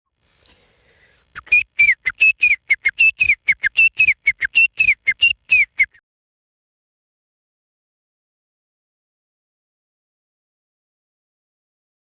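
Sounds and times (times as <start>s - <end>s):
man whistling bird call: 1.4s - 6.0s.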